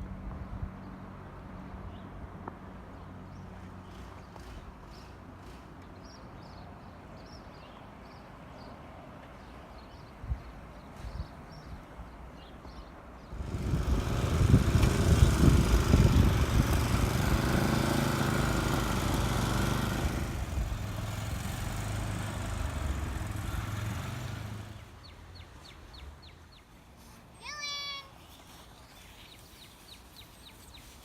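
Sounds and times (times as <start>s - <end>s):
engine running: 13.3s - 25.0s.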